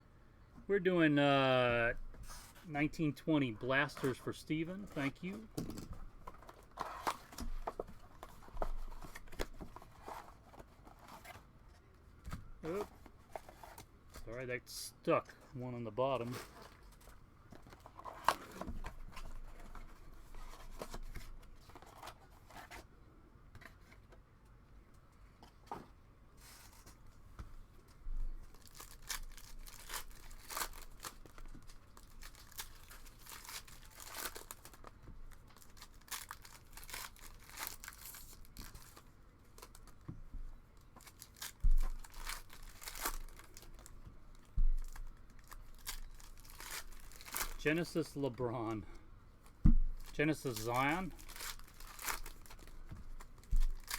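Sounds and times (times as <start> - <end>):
cards being handled: 3.4 - 11.4, 49.5 - 53.9
wrappers crinkling: 28.4 - 40.0, 40.8 - 48.0, 49.4 - 53.9
card packs being torn open: 28.5 - 40.0, 40.9 - 47.6, 50.0 - 53.9
dull thumps: 49.6 - 50.0.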